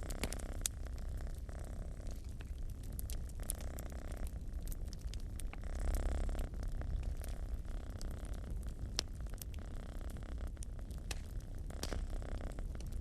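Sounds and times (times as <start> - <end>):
cat purring: 0.0 - 13.0
wood fire crackling: 0.0 - 13.0.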